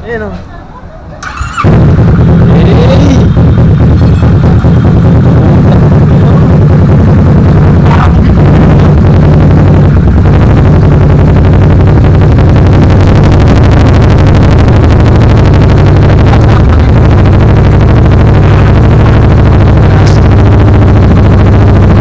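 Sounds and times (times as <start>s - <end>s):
loud motorcycle engine running: 1.3s - 22.0s.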